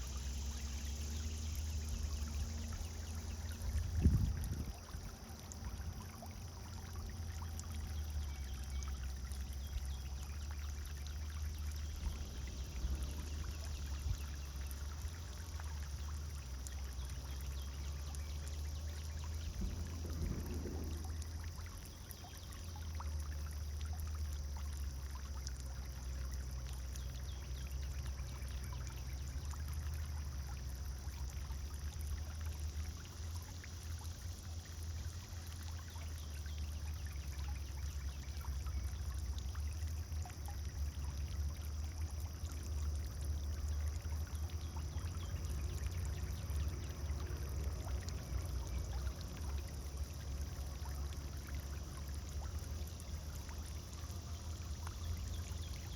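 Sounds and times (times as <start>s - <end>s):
fountain water splashing: 0.0s - 55.9s
low rumble: 19.2s - 22.1s.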